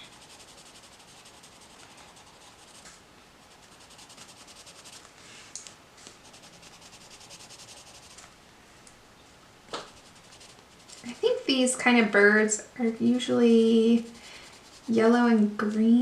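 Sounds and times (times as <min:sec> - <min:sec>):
pencil scratching on paper: 0:00.0 - 0:05.1, 0:06.2 - 0:08.2, 0:09.8 - 0:11.5, 0:14.0 - 0:16.0.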